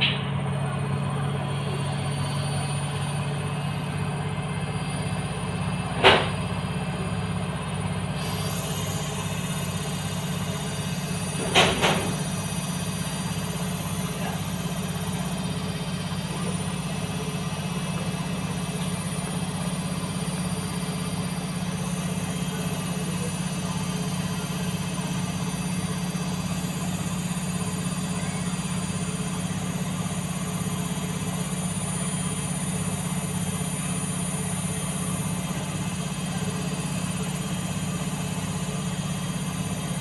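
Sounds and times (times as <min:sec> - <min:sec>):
washing machine spinning: 0:00.0 - 0:40.0.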